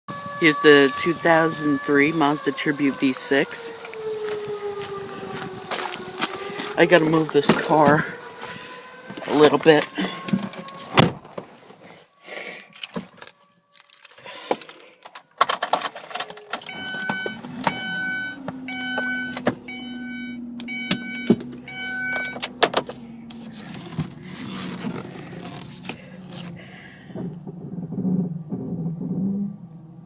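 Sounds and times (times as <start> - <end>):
electronic warning chime: 0.5 - 3.6, 16.7 - 22.5
keys rattling: 12.7 - 16.7.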